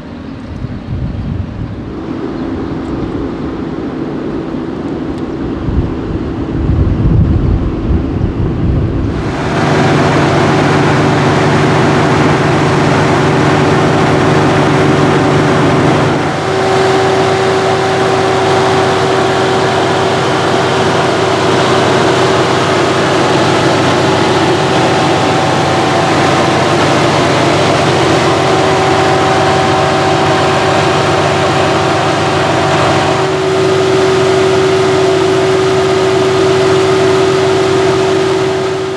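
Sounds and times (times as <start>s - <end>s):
deep rumble: 6.7s - 34.0s
car engine running steadily: 9.0s - 38.9s
airy rushing noise: 9.1s - 38.9s.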